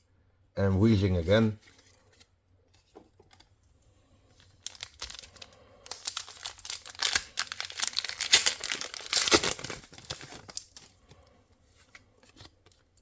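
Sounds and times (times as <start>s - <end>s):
foil wrapper crinkling and tearing: 4.4s - 11.1s.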